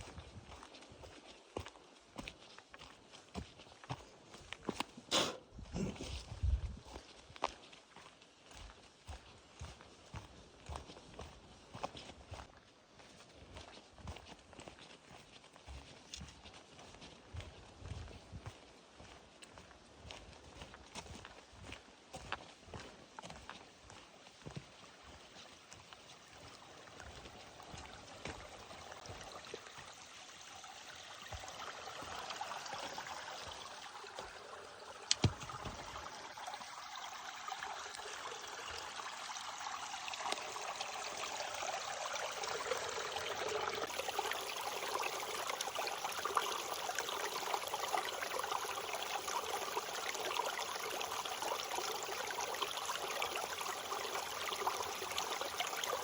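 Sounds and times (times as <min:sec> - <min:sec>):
footsteps on forest trail: 0:00.0 - 0:38.1
creek rushing: 0:27.3 - 0:56.0.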